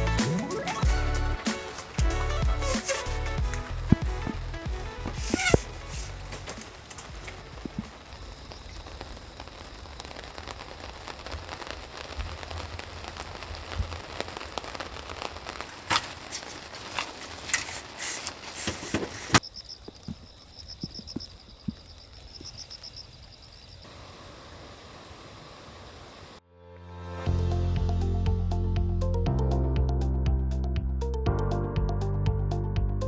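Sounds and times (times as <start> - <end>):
rain pattering on a surface: 0.0 - 26.4.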